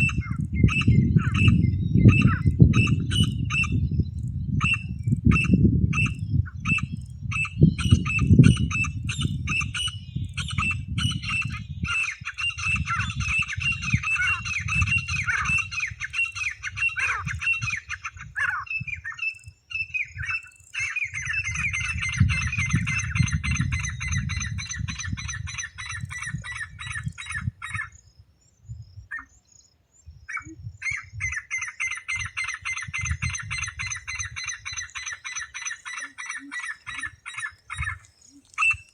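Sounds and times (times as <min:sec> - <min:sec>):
francolin calling harshly: 0:00.0 - 0:28.2, 0:29.0 - 0:38.9.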